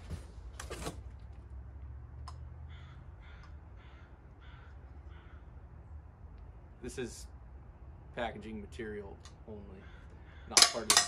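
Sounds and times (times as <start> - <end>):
low steady hum: 0.0 - 11.0
bird calling: 2.7 - 5.7, 9.6 - 10.9.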